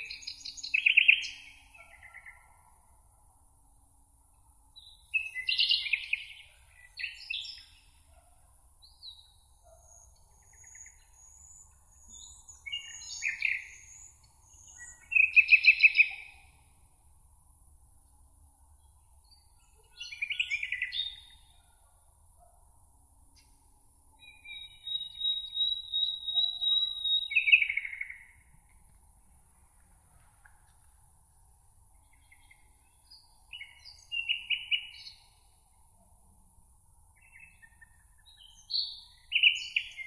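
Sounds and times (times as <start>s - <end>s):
songbirds chirping and trilling: 0.0s - 2.8s, 4.2s - 16.8s, 18.7s - 22.5s, 24.1s - 29.0s, 31.8s - 36.0s, 37.0s - 40.0s.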